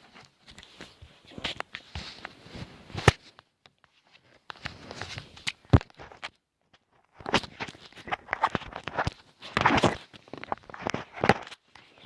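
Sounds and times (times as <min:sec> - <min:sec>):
rustling: 0:00.0 - 0:06.3.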